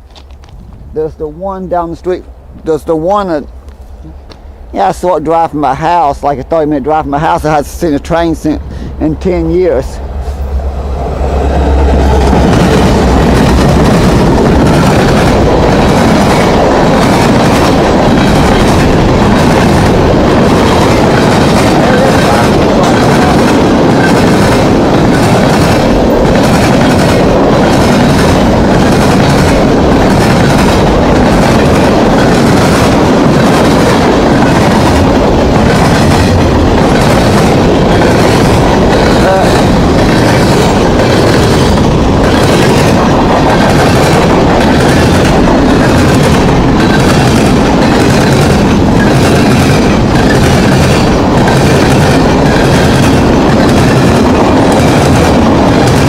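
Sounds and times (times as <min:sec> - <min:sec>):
train cars rolling past: 0:00.0 - 0:56.0.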